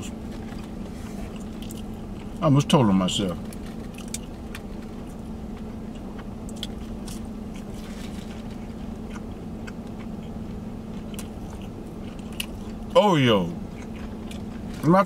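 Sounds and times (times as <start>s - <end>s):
steady low hum: 0.0s - 15.0s
mouth clicks chewing: 9.0s - 14.7s.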